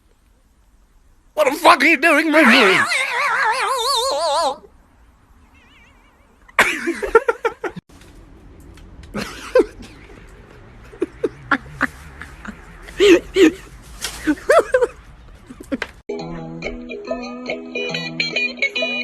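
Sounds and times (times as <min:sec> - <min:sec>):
pet animal calling: 0:05.4 - 0:06.5.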